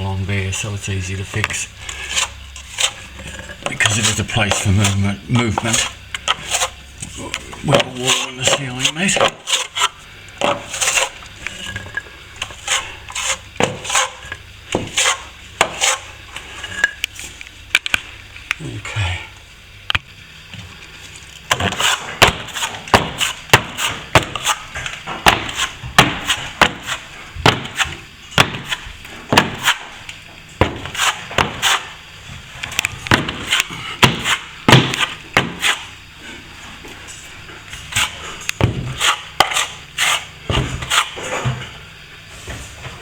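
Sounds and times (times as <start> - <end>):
plaster scraping: 1.3 - 17.0, 21.5 - 30.0, 30.6 - 36.7, 37.7 - 41.8
tool knocking plaster: 2.2 - 6.7, 7.7 - 9.7, 13.2 - 16.0, 21.5 - 29.9, 30.6 - 31.9, 33.1 - 35.9, 37.9 - 41.6.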